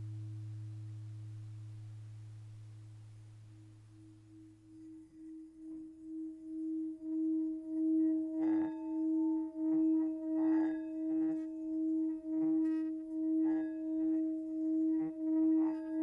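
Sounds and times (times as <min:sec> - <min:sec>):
low hum: 0:00.0 - 0:10.3
singing bowl ringing: 0:00.0 - 0:16.0.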